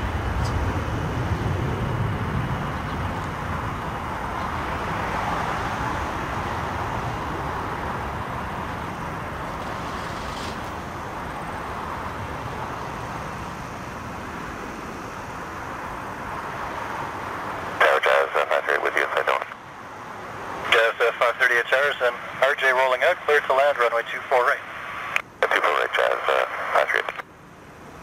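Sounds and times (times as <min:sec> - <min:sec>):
aircraft engine rumble: 0:00.0 - 0:28.0.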